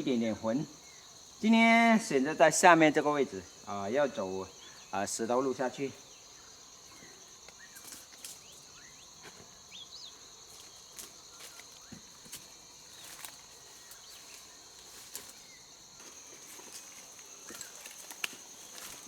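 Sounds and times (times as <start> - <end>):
insects chirring: 0.0 - 19.0
footsteps on stone path: 10.5 - 19.0.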